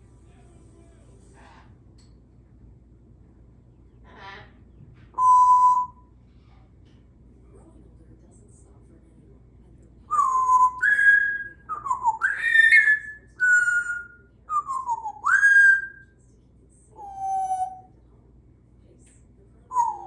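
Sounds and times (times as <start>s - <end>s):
parrot whistling notes: 5.2s - 6.0s, 10.2s - 16.0s.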